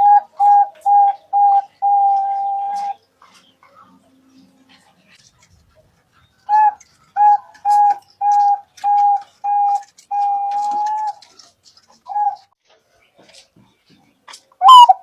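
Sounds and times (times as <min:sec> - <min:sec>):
dove cooing: 0:00.0 - 0:05.2, 0:06.4 - 0:12.6, 0:14.6 - 0:15.0.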